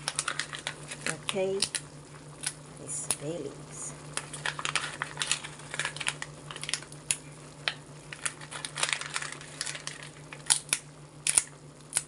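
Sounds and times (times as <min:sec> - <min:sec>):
dry leaves crinkling: 0:00.0 - 0:01.7, 0:04.2 - 0:06.9, 0:07.6 - 0:10.6
steady low hum: 0:00.0 - 0:12.0.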